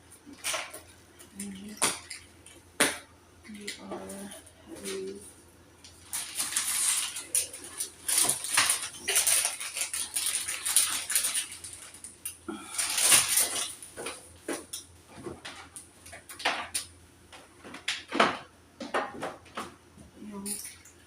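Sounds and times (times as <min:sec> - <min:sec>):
objects clattering and knocking: 0:06.0 - 0:12.1, 0:12.8 - 0:20.9.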